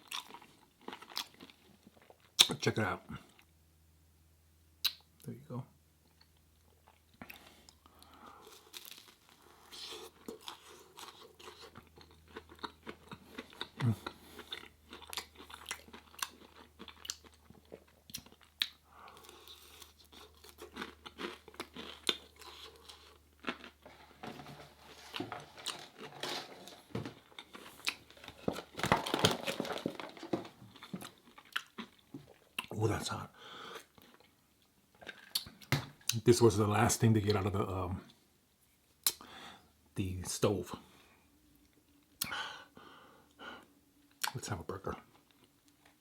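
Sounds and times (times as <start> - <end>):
crisp chewing and biting: 6.8 - 32.7.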